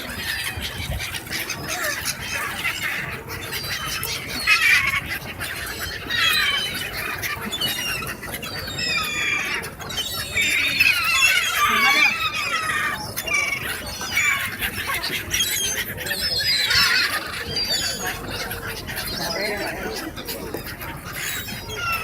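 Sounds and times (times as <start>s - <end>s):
flock of birds calling: 0.0s - 22.0s.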